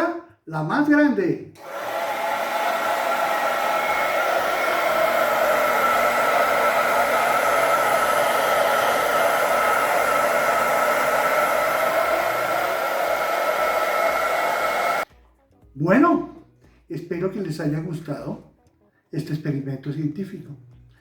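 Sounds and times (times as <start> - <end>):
hair dryer running: 1.6 - 15.1.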